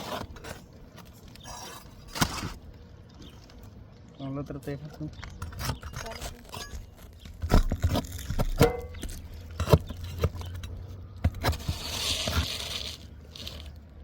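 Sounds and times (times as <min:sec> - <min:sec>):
roof tile scraping: 0:00.0 - 0:03.5, 0:05.2 - 0:13.9
roof tiles knocking and clinking: 0:05.2 - 0:11.4.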